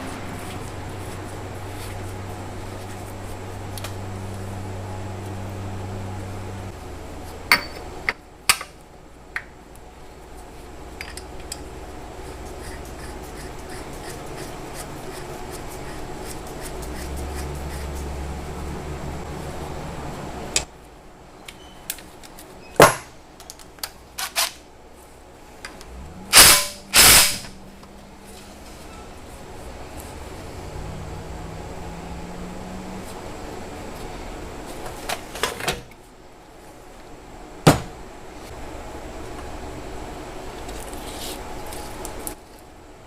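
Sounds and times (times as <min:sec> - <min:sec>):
low hum: 0:00.0 - 0:07.8, 0:25.2 - 0:34.7
short loud bursts of noise: 0:26.3 - 0:27.6.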